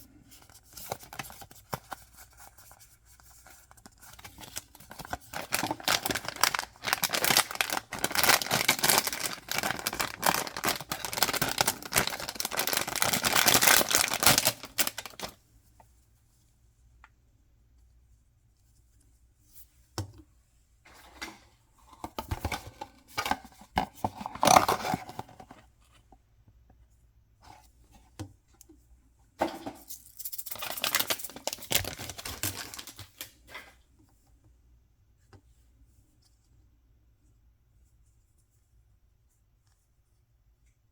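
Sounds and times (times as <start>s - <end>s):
handling noises: 4.3s - 15.4s
packaging being torn open: 4.5s - 15.4s, 30.5s - 33.3s.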